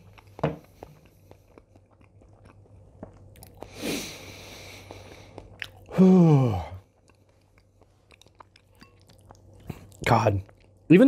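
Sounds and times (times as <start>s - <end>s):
person chewing food: 0.0s - 10.9s.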